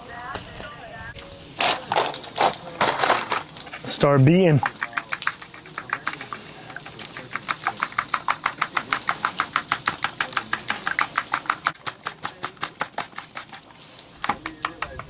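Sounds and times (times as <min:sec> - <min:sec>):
whisk clicking against bowl: 0:01.7 - 0:15.0.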